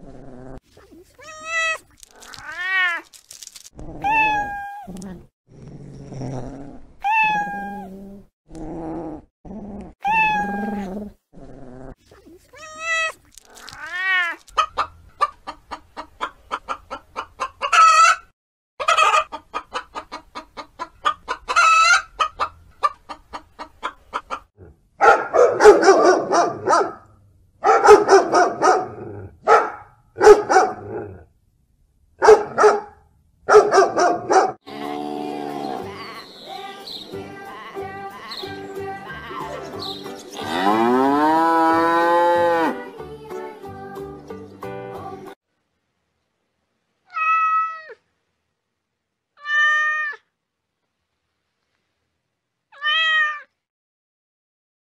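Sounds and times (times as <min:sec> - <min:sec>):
kitten meowing: 0:04.0 - 0:05.0, 0:07.0 - 0:07.9, 0:10.0 - 0:10.9, 0:47.1 - 0:48.0, 0:52.8 - 0:53.5
hen clucking: 0:14.5 - 0:18.2, 0:18.8 - 0:24.5, 0:34.7 - 0:40.4
puppy barking: 0:25.0 - 0:30.9, 0:32.2 - 0:34.6.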